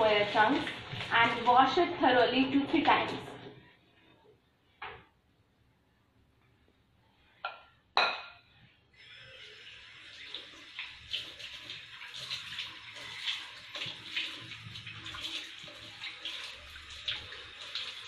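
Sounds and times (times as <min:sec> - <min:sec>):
tap water running into bowl: 0:00.0 - 0:01.8, 0:09.4 - 0:18.0
water splashing: 0:00.0 - 0:02.0, 0:09.9 - 0:18.0.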